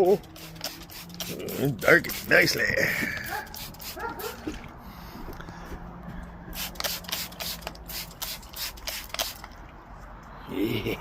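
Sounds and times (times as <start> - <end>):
spray bottle spritzing: 0.0 - 4.6, 6.5 - 9.6.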